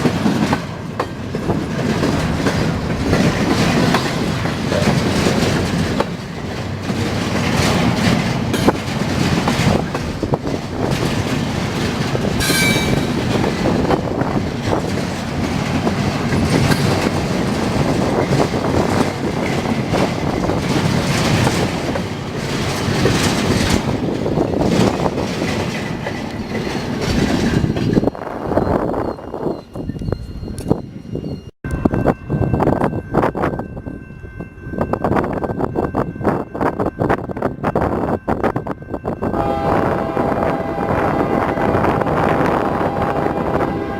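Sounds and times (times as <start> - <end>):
train wheels clattering on rails: 0.0 - 33.8
high-pitched wheel squeal: 28.0 - 31.5.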